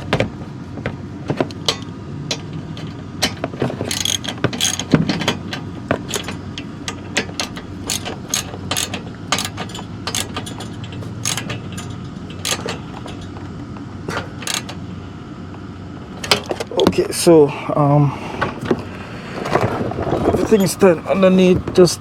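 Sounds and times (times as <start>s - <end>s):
steady low hum: 0.0s - 22.0s
ratchet wrench clicking: 1.6s - 13.4s, 14.3s - 14.8s.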